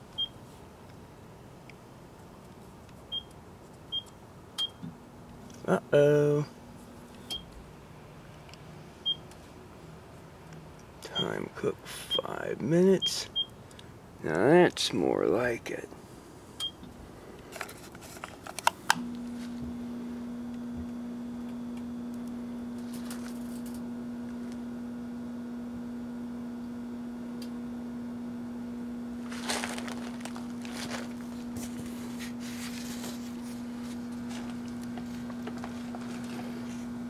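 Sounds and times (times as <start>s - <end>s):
microwave humming: 16.0s - 37.0s.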